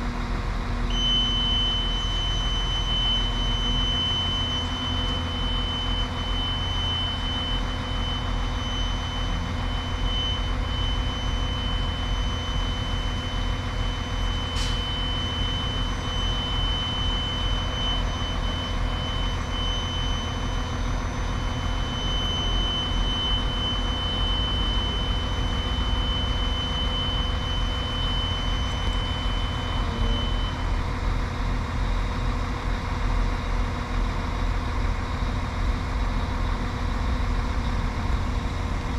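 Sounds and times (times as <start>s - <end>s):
diesel train engine idling: 0.0s - 38.9s
faint high whine: 0.9s - 30.8s.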